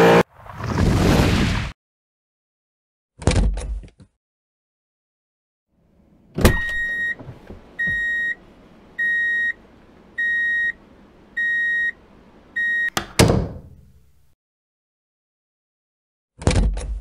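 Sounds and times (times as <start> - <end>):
high electronic beeps: 10.2 - 10.8.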